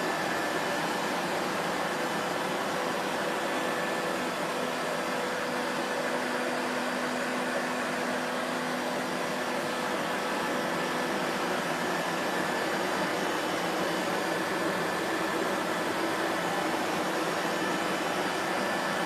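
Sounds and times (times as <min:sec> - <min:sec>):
vacuum cleaner motor running: 0:00.0 - 0:19.0.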